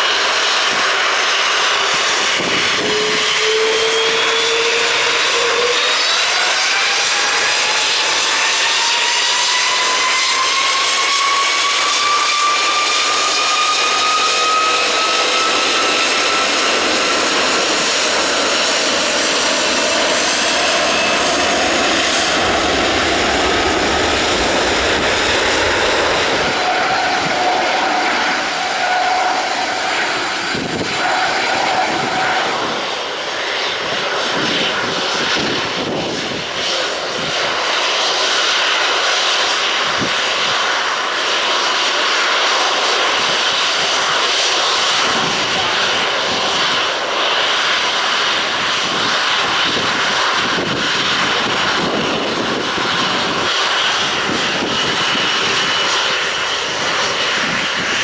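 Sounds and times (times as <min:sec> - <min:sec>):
jet engines roaring with whine: 0:00.0 - 0:58.0.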